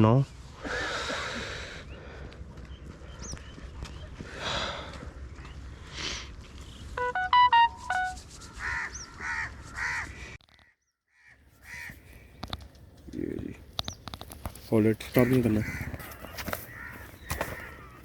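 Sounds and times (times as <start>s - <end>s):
electronic melody of beeps: 7.0s - 8.4s
crows cawing: 8.6s - 12.6s, 14.9s - 18.0s.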